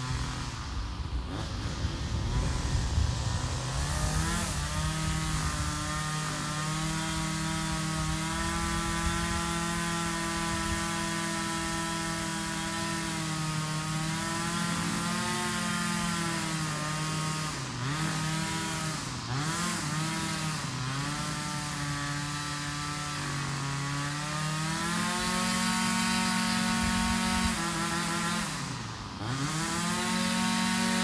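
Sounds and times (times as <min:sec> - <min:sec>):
small two-stroke engine running: 0:00.0 - 0:31.0.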